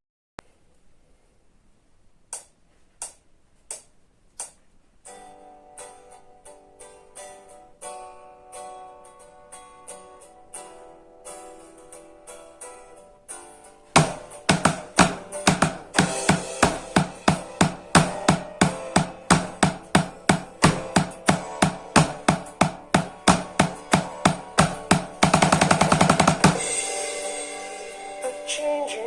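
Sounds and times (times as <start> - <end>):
melodic backing: 13.4 - 29.0
fast drum roll: 14.0 - 26.8
soft plucked notes: 14.0 - 26.9
drum kit beat: 14.0 - 28.5.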